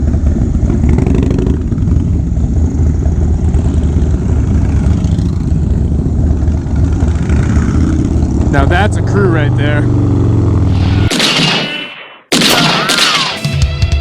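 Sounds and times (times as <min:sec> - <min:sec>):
motorcycle engine deep rumble: 0:00.0 - 0:10.8.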